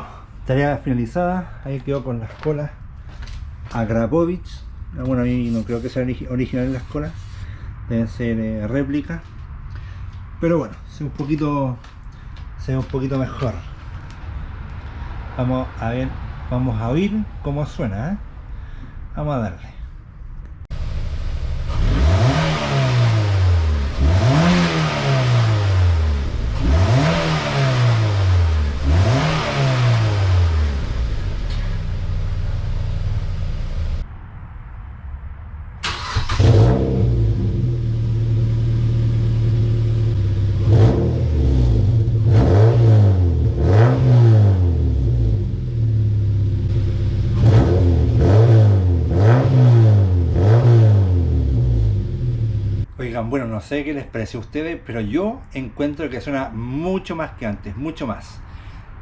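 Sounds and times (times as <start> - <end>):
car engine idling: 0.0 - 15.0, 20.7 - 34.0, 35.8 - 40.7, 51.6 - 52.9
car engine revving: 20.7 - 34.0, 35.8 - 52.9.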